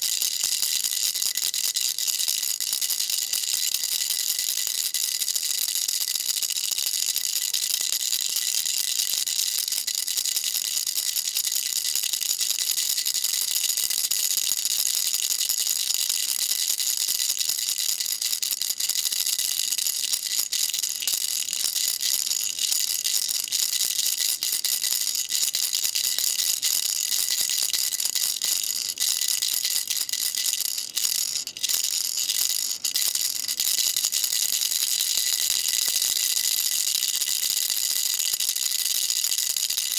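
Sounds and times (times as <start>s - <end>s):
baby rattle shaken: 16.1s - 39.9s.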